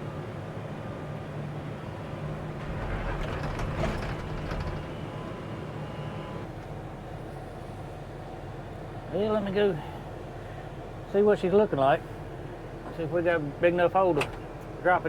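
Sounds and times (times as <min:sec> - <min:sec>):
excavator diesel engine running: 0:00.0 - 0:09.4
machine rattles and knocks: 0:02.4 - 0:05.3.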